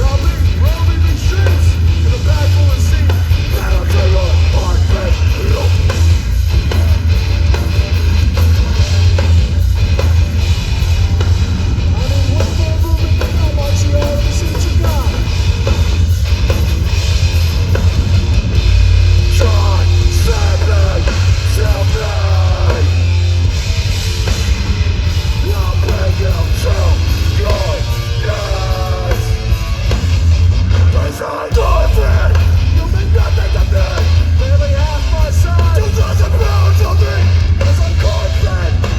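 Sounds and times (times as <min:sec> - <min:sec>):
bass guitar: 0:00.0 - 0:38.9
distorted guitars: 0:00.0 - 0:38.9
drums: 0:00.0 - 0:38.9.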